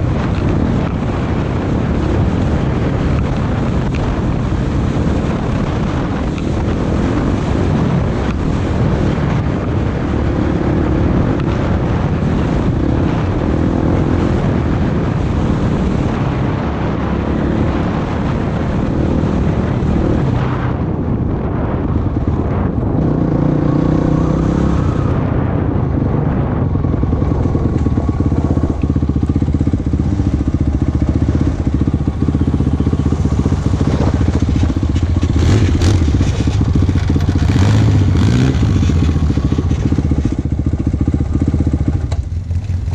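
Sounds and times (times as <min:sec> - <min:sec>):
off-road vehicle engine revving: 0:22.9 - 0:25.2, 0:27.7 - 0:42.9.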